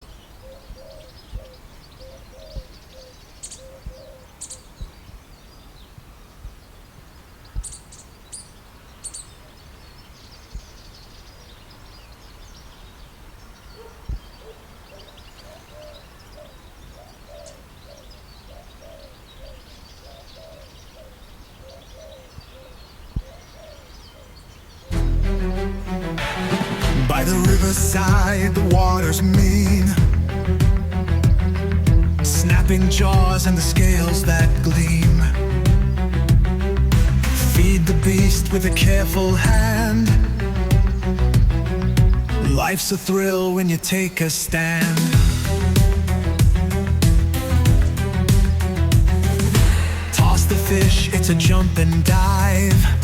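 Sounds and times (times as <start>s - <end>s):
sharp low bumps: 24.9s - 42.6s, 44.8s - 53.0s.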